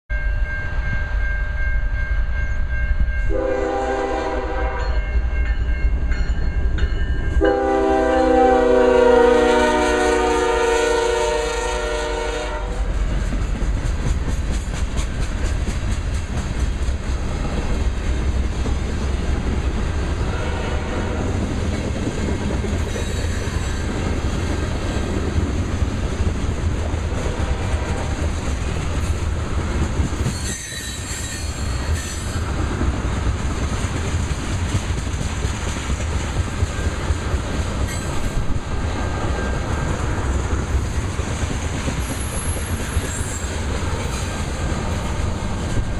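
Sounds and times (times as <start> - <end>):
train wheels rumbling on rails: 0.2 - 45.9
train horn: 3.3 - 5.2, 7.4 - 13.1, 20.2 - 21.4
high wheel squeals: 30.2 - 32.5, 42.0 - 44.4.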